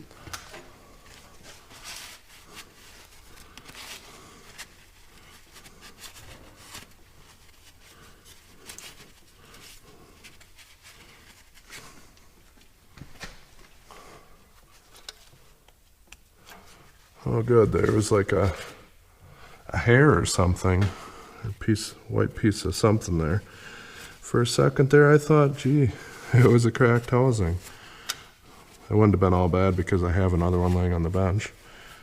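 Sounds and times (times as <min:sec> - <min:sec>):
rubbing and light clicks: 0:14.5 - 0:18.6.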